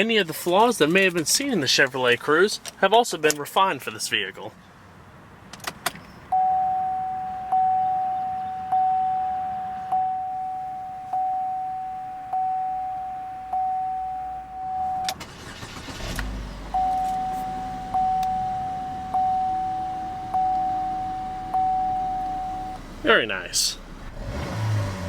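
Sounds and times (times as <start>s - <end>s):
car engine cranking and idling: 5.0s - 25.0s
car warning chime dinging: 6.3s - 23.9s.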